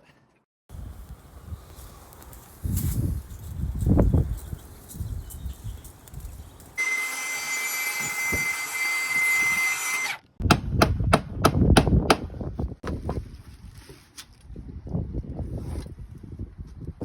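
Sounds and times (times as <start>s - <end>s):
power tool whining: 6.8s - 10.3s.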